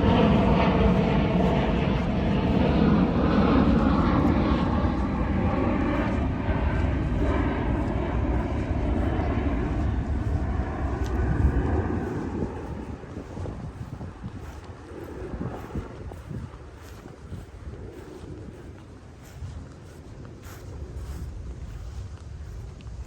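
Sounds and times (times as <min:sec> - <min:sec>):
aircraft engines flying over: 0:00.0 - 0:23.0.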